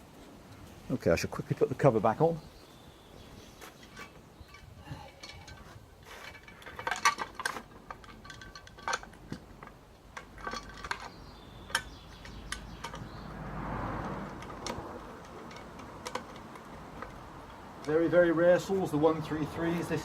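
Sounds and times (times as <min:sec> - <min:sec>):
metal cover clinking: 0:06.3 - 0:13.1.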